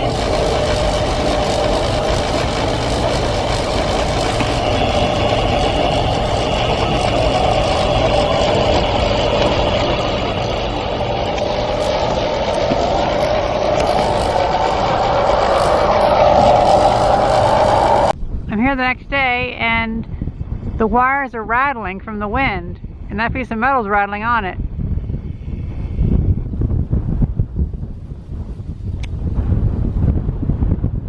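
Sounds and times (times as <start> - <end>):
power lines droning whine: 0.0 - 18.2
steady rushing noise: 0.0 - 19.5.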